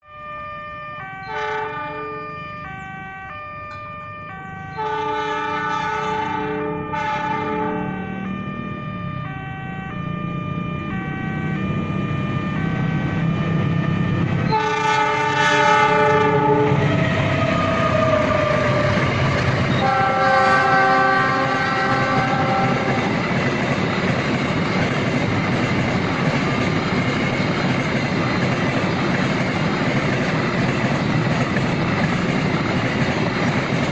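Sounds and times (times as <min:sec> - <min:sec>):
locomotive horn blasts: 0:00.0 - 0:23.2
train wheel and rail noise: 0:00.0 - 0:33.9.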